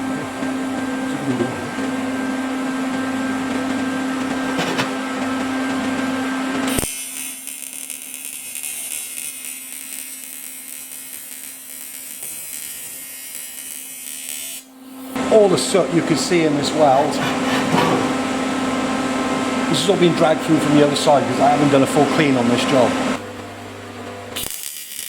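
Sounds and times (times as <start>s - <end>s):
welding machine hum and whine: 0.0s - 25.0s
welding arc buzzing and hissing: 3.3s - 23.2s, 24.3s - 25.0s.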